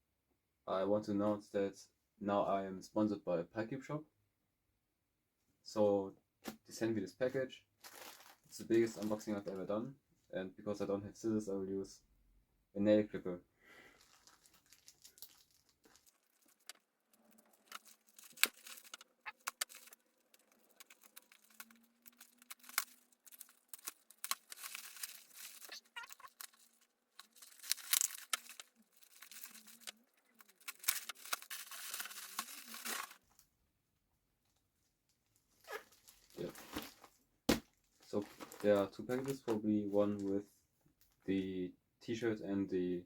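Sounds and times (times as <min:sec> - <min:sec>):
package ripping and crinkling: 0:07.8 - 0:09.2, 0:13.9 - 0:33.2, 0:35.6 - 0:37.6, 0:38.2 - 0:39.6.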